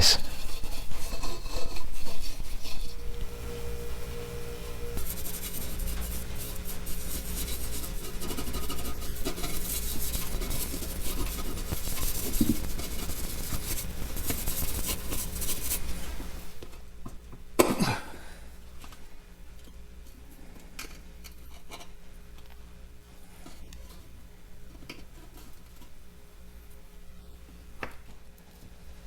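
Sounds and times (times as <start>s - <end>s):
hand scrubbing chrome: 0.0s - 16.5s.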